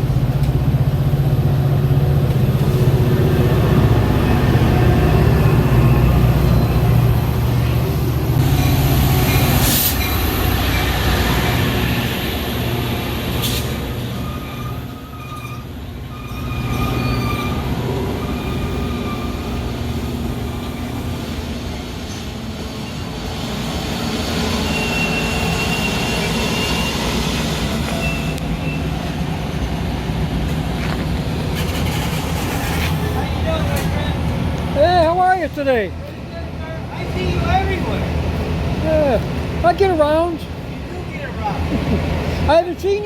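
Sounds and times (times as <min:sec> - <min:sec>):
train rumbling: 0:00.0 - 0:43.0
high wheel squeal: 0:04.7 - 0:06.9, 0:08.4 - 0:11.8, 0:13.4 - 0:21.1, 0:22.1 - 0:23.3, 0:24.5 - 0:28.9, 0:31.5 - 0:33.9.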